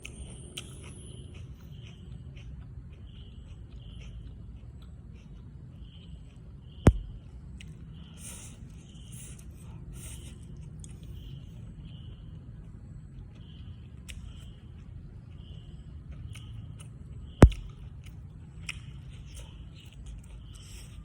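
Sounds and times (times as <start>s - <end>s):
chewing and biting food: 0.0s - 21.0s
sharp thump: 6.9s - 7.2s, 17.4s - 17.7s.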